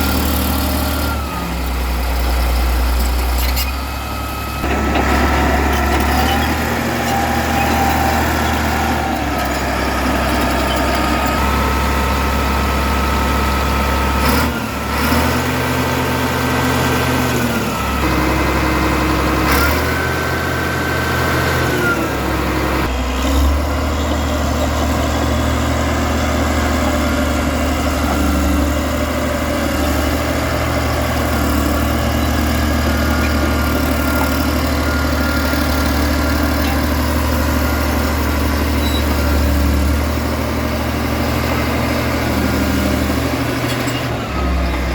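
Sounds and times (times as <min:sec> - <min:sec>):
bulldozer diesel engine running: 0:00.0 - 0:44.9.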